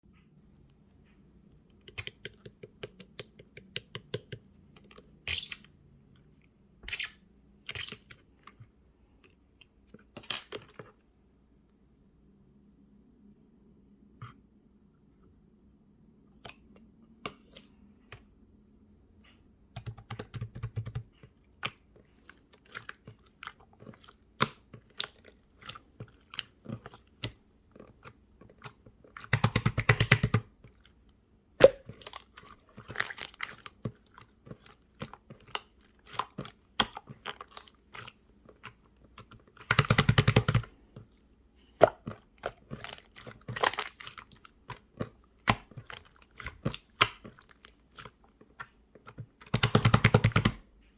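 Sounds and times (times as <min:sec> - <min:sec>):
slime squished by hand: 0:31.6 - 0:50.6.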